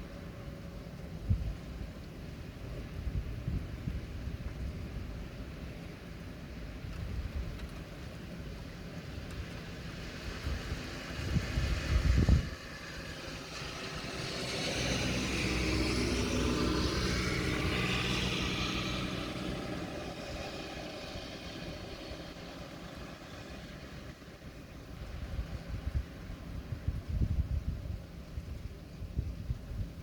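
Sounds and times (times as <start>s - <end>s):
vehicle passing on wet road: 8.0s - 26.9s.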